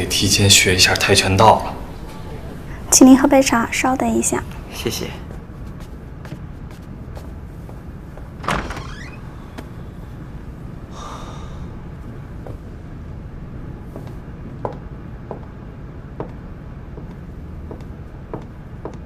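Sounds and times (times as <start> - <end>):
low steady hum: 0.0 - 19.0
door sliding: 8.3 - 9.8.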